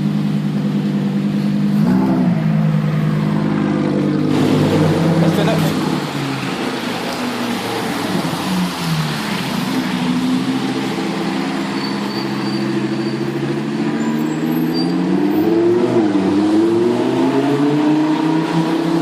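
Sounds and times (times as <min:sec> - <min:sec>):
sports car engine running: 0:00.0 - 0:13.9.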